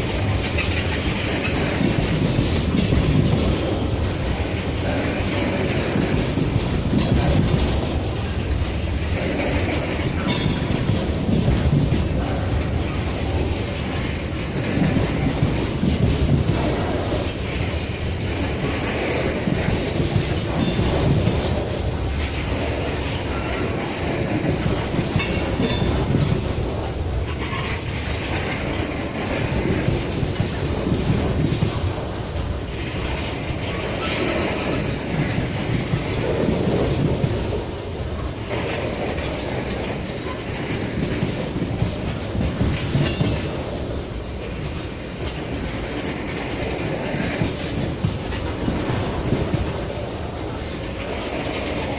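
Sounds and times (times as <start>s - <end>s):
train wheels clacking on rails: 0.0s - 51.9s
wheels squealing: 43.9s - 44.5s.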